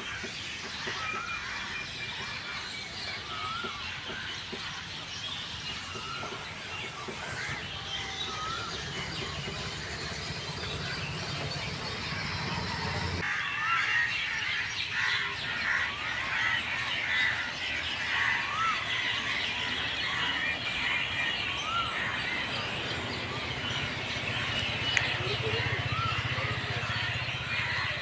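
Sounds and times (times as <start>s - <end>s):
birds chirping and squawking: 0.0s - 28.0s
low hum: 7.5s - 13.2s.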